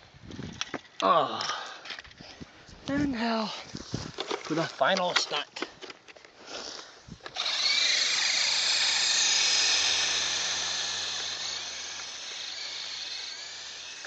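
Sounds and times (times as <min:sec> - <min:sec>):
model helicopter rotor whine: 0:07.2 - 0:14.0.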